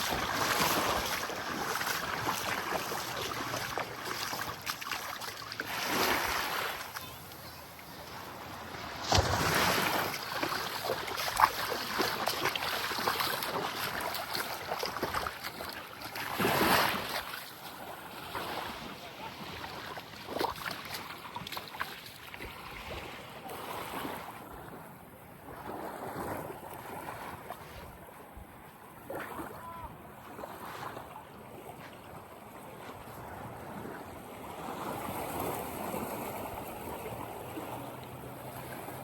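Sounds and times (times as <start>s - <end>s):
light breeze: 0.0s - 39.0s
small waves lapping on sand: 0.0s - 39.0s.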